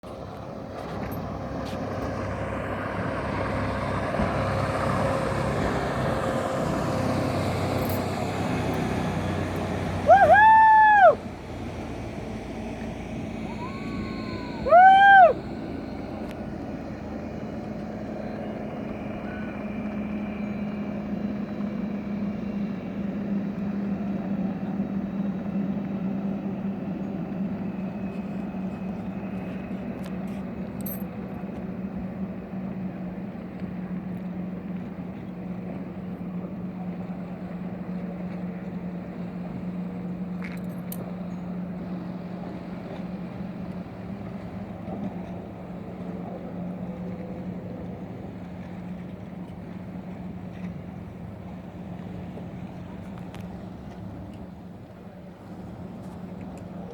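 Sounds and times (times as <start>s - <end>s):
motorboat engine humming: 0.0s - 56.9s.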